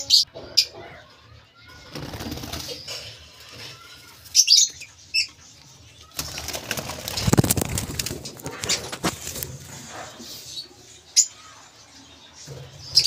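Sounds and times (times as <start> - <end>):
wings fluttering: 1.9 - 3.0, 6.0 - 9.9
high-pitched bird chirps: 4.3 - 5.4.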